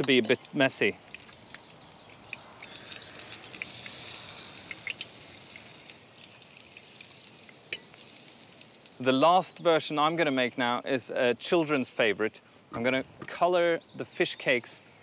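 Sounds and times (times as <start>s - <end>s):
fish cakes sizzling in oil: 1.2s - 9.0s.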